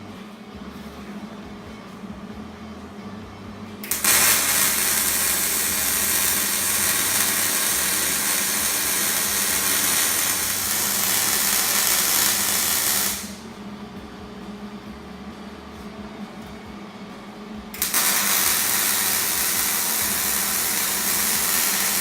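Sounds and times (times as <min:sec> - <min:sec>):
welding arc sizzling: 0:03.8 - 0:13.5, 0:17.8 - 0:22.0.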